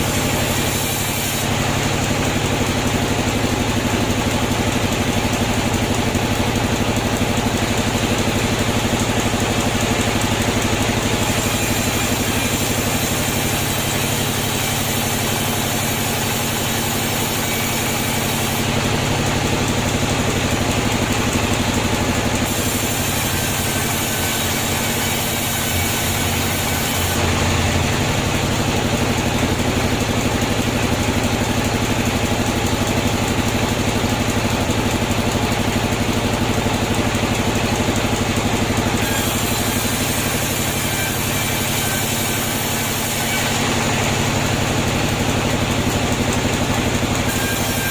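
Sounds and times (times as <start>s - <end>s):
sawmill machinery humming: 0.0s - 47.9s.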